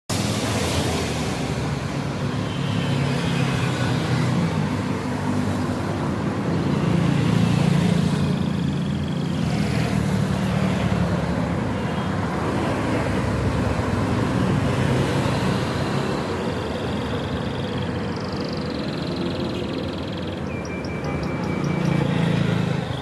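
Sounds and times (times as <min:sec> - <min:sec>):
road traffic rumble and hiss: 0:00.1 - 0:23.0
canary singing: 0:16.7 - 0:22.7.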